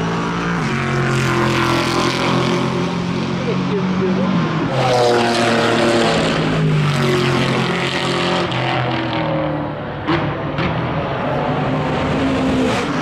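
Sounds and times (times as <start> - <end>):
race car engine running hard: 0.0 - 13.0.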